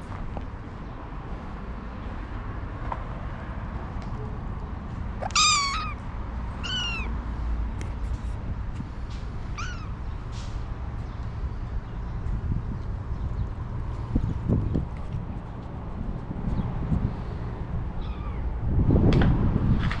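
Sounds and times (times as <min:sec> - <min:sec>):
cat meowing: 0:05.2 - 0:06.0, 0:06.6 - 0:07.2, 0:09.6 - 0:10.0, 0:18.0 - 0:18.4.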